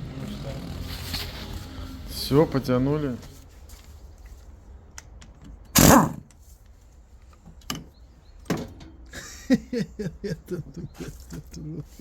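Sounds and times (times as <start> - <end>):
metal clunk: 7.6 - 9.2.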